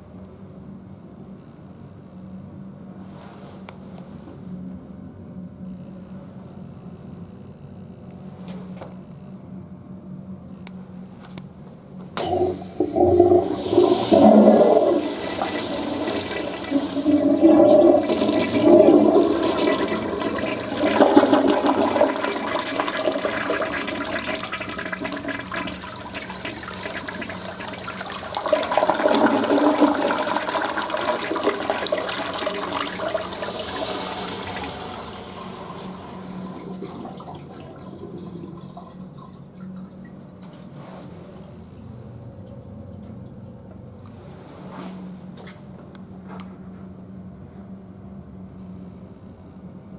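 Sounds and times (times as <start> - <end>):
toilet flushing: 12.2 - 43.7.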